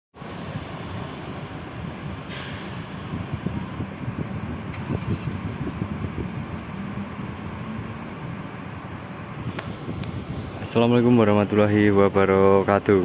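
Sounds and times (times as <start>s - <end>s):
bus diesel engine idling: 0.3s - 13.0s
hiss of released air: 2.3s - 3.2s.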